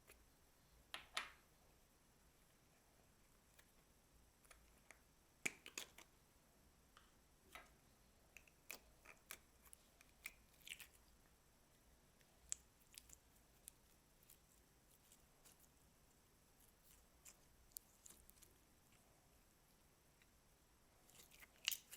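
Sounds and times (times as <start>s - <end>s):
slime clicking and crackling: 8.4s - 11.0s, 12.4s - 15.6s, 21.1s - 21.9s.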